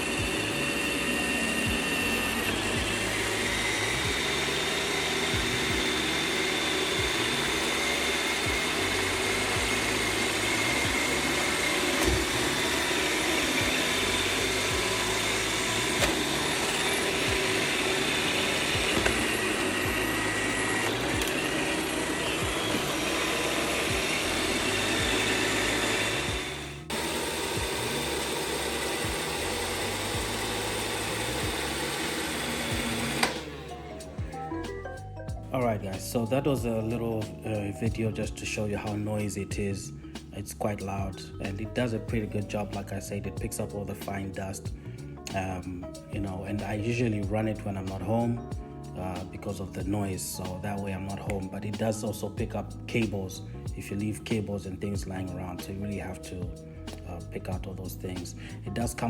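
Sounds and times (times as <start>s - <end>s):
robot vacuum whirring: 0.0s - 34.6s.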